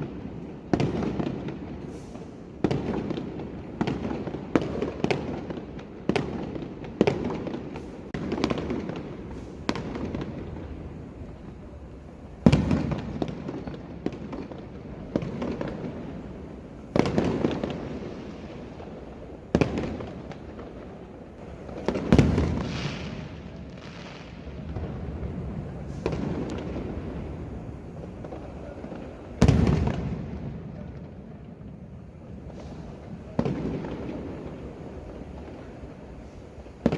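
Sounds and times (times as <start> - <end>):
crackling hiss: 0.0 - 36.9
fireworks bangs echoing: 0.0 - 36.9
heavy firework booms: 0.0 - 36.9.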